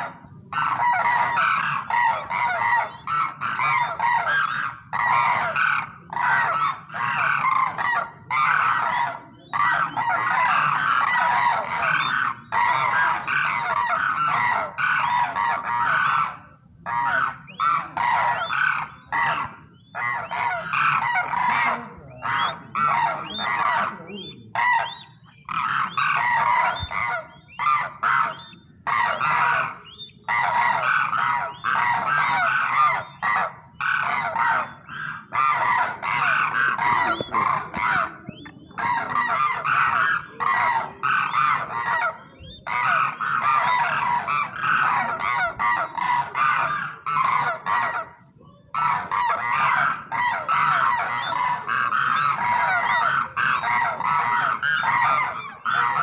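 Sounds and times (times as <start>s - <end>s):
cranes honking: 18.0s - 47.6s.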